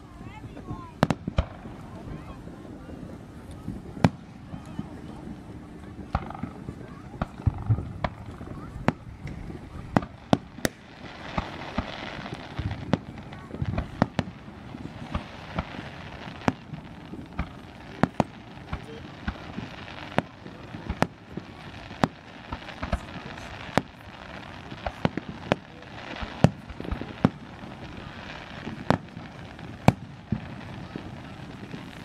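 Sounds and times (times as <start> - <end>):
firework bangs: 0.0 - 32.0.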